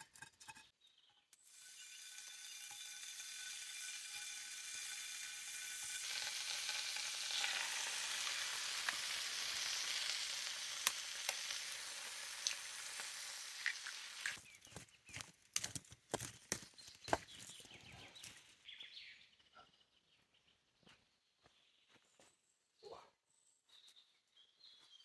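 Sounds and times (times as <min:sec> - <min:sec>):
food sizzling in a pan: 0:01.4 - 0:14.4.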